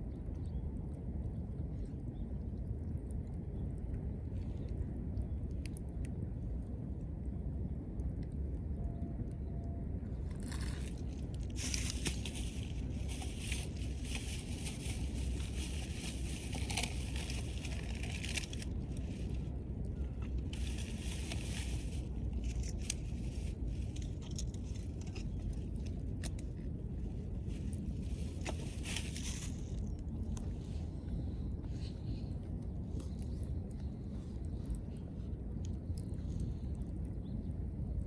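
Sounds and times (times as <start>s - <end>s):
low rumble: 0.0s - 38.0s.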